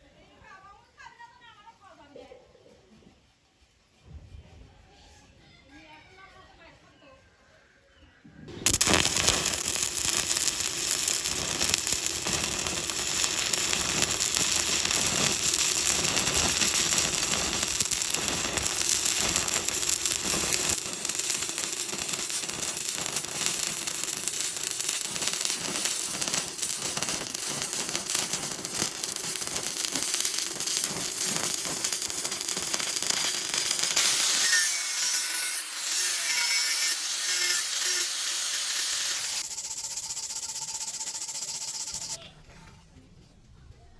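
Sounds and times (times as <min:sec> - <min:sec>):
welding arc crackling: 0:08.6 - 0:42.2.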